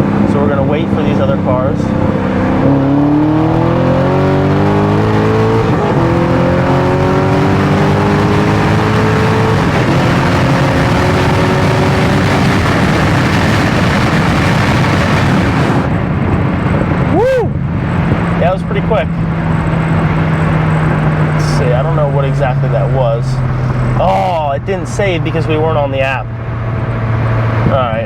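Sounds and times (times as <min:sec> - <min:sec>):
car engine revving at full throttle: 0:00.0 - 0:28.0
steady rush of noise: 0:08.8 - 0:28.0.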